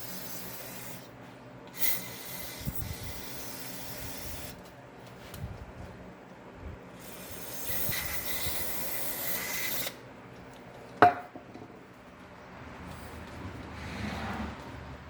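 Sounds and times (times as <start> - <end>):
hissing spray: 1.8 - 4.6, 7.0 - 10.0.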